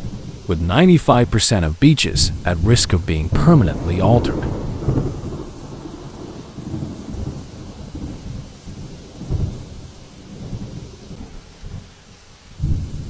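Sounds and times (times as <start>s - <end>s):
rain-like hiss: 0.0s - 13.0s
thunder rumbling: 0.0s - 13.0s.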